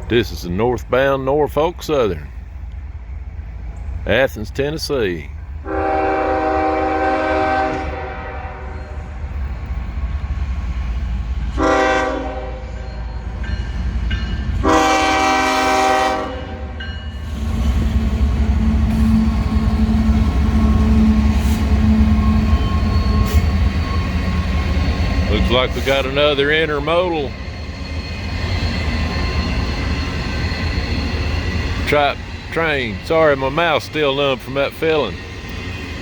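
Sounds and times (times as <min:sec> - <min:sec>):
train rumble passing: 0:00.0 - 0:36.0
locomotive air horn blasts: 0:05.6 - 0:09.0, 0:11.5 - 0:12.9, 0:14.6 - 0:16.8.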